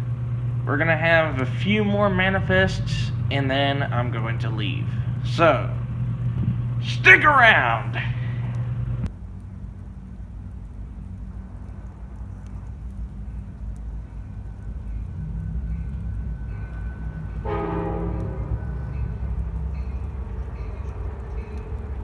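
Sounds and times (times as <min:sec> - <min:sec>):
train horn blast: 0:00.0 - 0:09.1, 0:14.9 - 0:22.0
diesel locomotive rumbling: 0:00.0 - 0:22.0.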